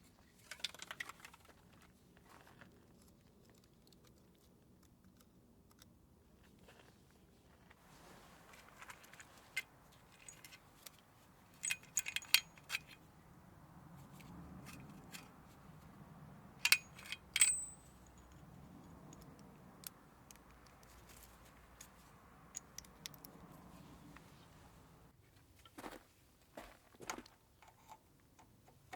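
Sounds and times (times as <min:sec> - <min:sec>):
metal objects clinking: 0:08.9 - 0:13.1, 0:14.0 - 0:25.0.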